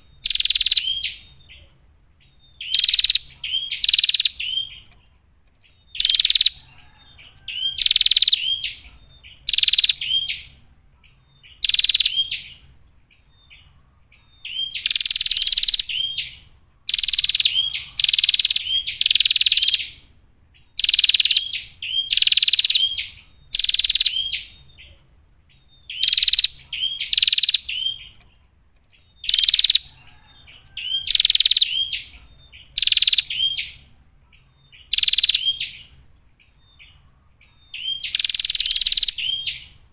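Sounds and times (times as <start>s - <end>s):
bird calling rapidly: 0.0s - 1.6s, 2.6s - 4.8s, 5.9s - 10.6s, 11.5s - 12.6s, 14.3s - 20.0s, 20.8s - 24.6s, 25.9s - 28.2s, 29.2s - 33.9s, 34.8s - 35.9s, 37.7s - 39.8s.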